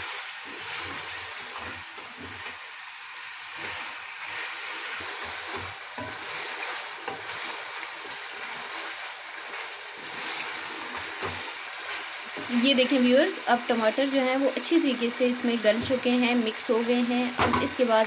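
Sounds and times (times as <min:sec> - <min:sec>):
wooden spoon stirring pot: 0:00.0 - 0:02.6, 0:03.5 - 0:13.4, 0:15.5 - 0:16.4
food sizzling in hot oil: 0:00.0 - 0:18.0.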